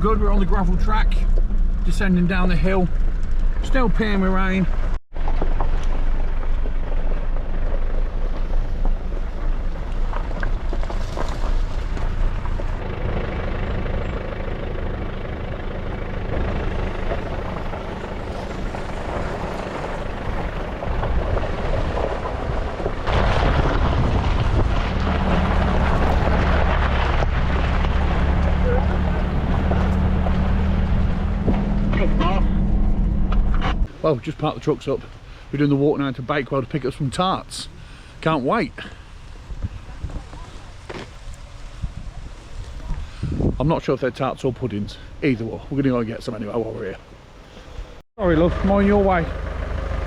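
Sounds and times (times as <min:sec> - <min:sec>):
low hum: 0:00.0 - 0:04.0, 0:04.6 - 0:33.9
truck engine and tyre rumble: 0:00.0 - 0:50.0.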